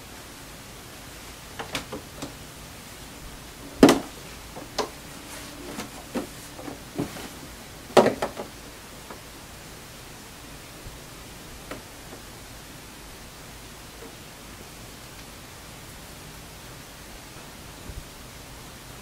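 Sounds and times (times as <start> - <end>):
steady hiss: 0.0 - 19.0
knocks and taps at a sewing machine: 3.8 - 5.0, 8.0 - 8.5.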